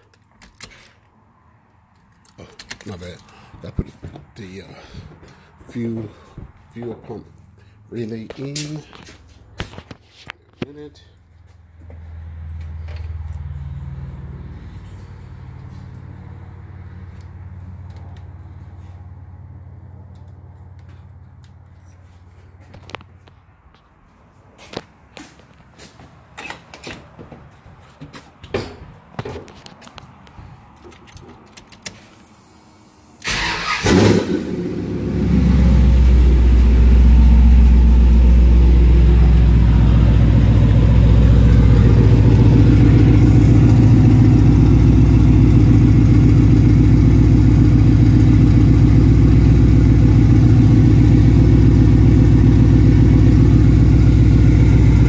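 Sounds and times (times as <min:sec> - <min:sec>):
engine cranking and starting: 0:33.2 - 0:36.4
engine idling: 0:33.3 - 0:55.0.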